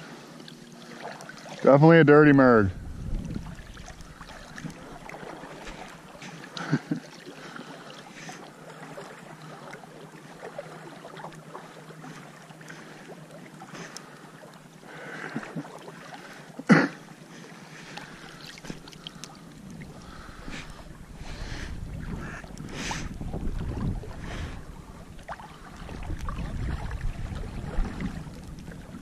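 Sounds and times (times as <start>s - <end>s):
water lapping against boat: 0.0s - 29.0s
wind: 0.0s - 29.0s.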